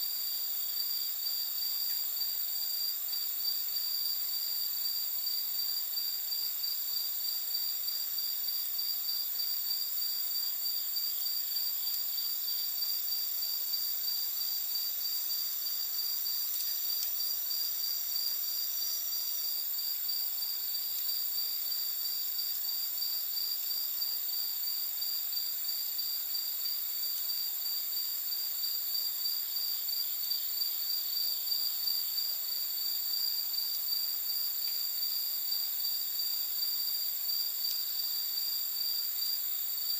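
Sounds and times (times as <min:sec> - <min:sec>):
crickets trilling: 0:00.0 - 0:39.9
faint campfire crackles: 0:00.1 - 0:24.1.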